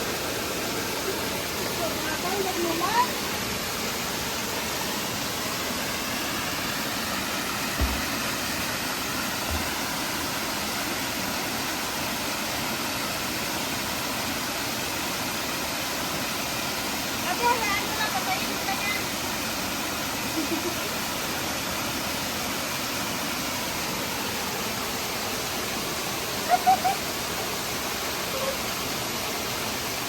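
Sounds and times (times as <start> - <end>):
waterfall and stream rushing: 0.0 - 30.0
low thumps: 7.8 - 8.2.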